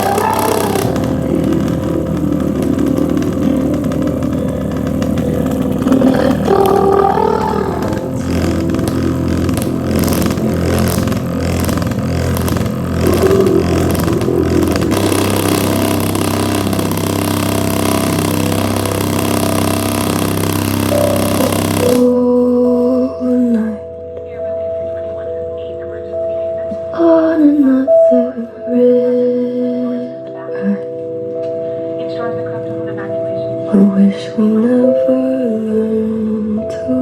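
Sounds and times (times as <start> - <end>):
speaker crackling clicks: 0.0 - 22.2
distorted bass-boosted song on speaker: 0.0 - 30.8.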